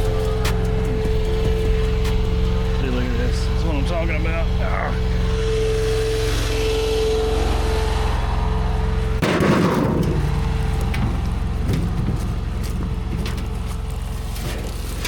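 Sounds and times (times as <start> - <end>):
steady whine: 0.0 - 15.0
track loader engine running: 0.0 - 15.0
clanks and rattles: 9.2 - 15.0.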